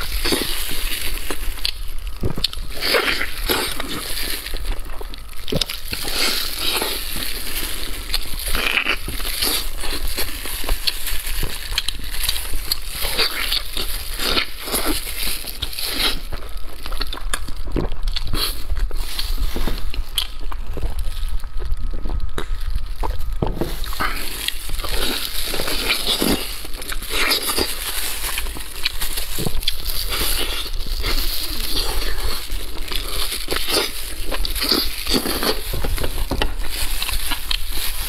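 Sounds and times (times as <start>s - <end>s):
wet chewing: 0.0s - 38.0s.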